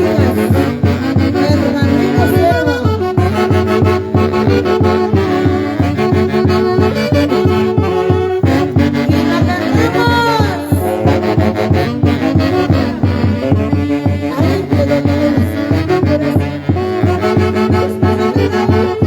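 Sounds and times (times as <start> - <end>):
horn section playing melody: 0.0 - 19.0
steady dance beat: 7.6 - 11.1.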